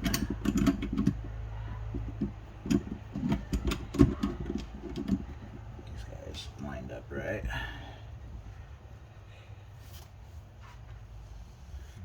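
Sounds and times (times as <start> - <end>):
metal parts clinking and knocking: 0.0 - 6.0
low steady hum: 0.0 - 12.0.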